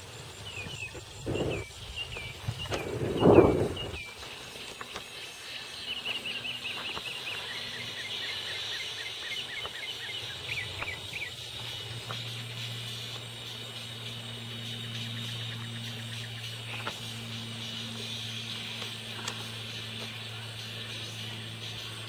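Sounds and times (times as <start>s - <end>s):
small birds chirping: 0.0s - 22.0s
steady high hiss: 0.0s - 22.0s
muffled rumble: 0.5s - 4.2s.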